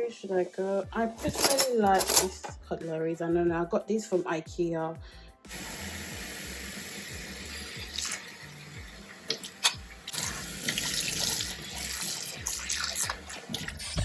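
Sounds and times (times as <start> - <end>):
cutlery and dishes clinking: 1.1 - 2.5, 9.3 - 10.8, 12.4 - 14.0
water running from tap into sink: 5.5 - 14.0.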